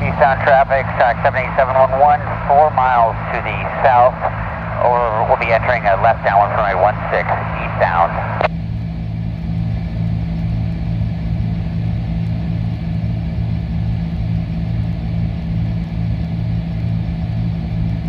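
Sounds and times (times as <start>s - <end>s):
propeller engines droning: 0.0s - 8.5s.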